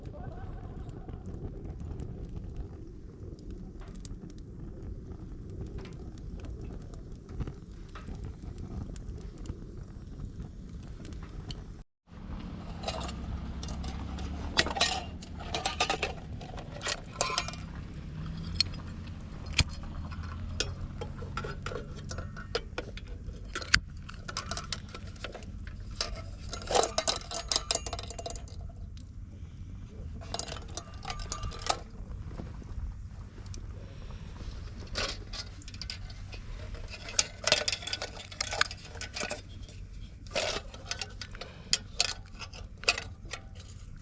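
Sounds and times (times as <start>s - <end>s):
steady low rumble: 0.0s - 44.0s
camp gear and tableware clinking: 12.6s - 29.1s, 30.1s - 32.7s, 33.4s - 44.0s.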